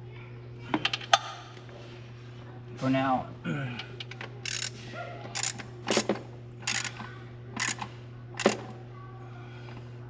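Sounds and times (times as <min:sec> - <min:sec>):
hand ratchet clicking: 0:06.6 - 0:07.0.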